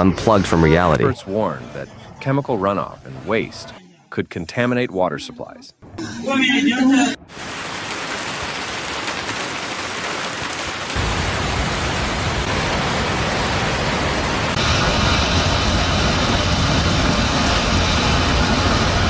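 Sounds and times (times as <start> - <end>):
rushing water: 7.3 - 16.1.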